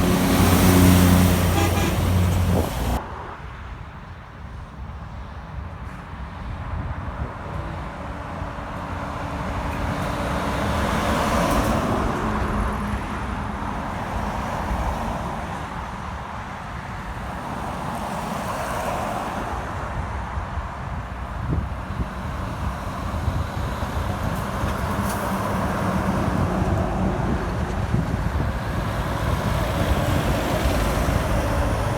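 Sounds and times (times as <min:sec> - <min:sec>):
heavy truck driving past: 0:00.0 - 0:03.0, 0:23.2 - 0:31.9
vehicle approaching: 0:00.0 - 0:03.2, 0:22.5 - 0:31.9.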